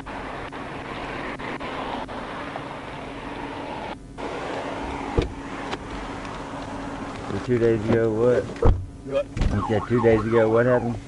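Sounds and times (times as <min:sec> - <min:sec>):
vehicle running with low hum: 0:00.0 - 0:11.0
thump: 0:05.2 - 0:05.4, 0:08.6 - 0:09.6.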